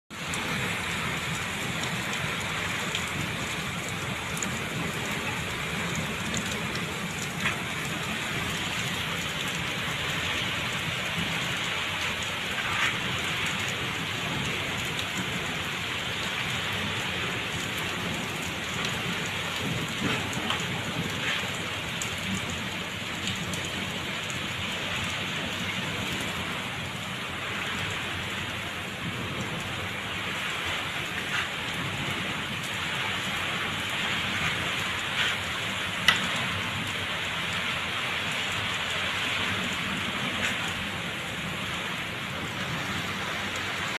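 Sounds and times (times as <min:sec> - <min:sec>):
heavy rain pouring: 0:00.1 - 0:43.9
sharp raindrop hits: 0:00.1 - 0:43.9.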